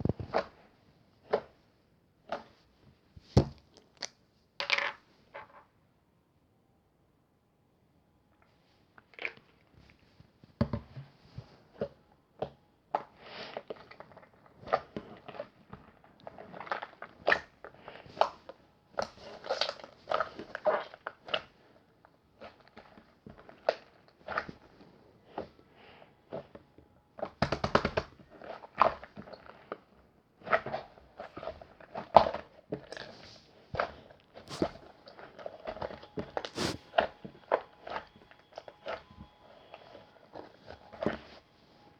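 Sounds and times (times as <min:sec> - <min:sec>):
person eating crunchy food: 0:34.5 - 0:34.8, 0:36.6 - 0:36.8.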